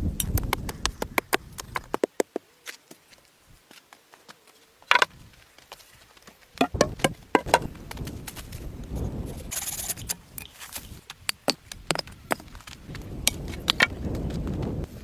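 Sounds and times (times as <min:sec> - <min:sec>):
sharp knocks and clicks: 0:06.6 - 0:07.7.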